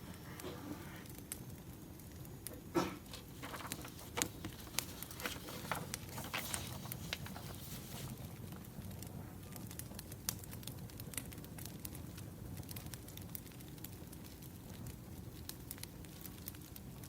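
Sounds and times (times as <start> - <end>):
firewood crackling: 1.0 - 17.0
low steady rumble: 3.2 - 12.6
sharp pops of fire: 8.0 - 17.0.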